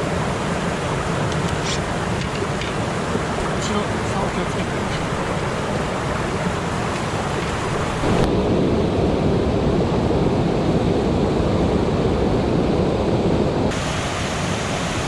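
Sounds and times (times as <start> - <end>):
stream rushing over rocks: 0.0 - 8.3, 13.7 - 15.0.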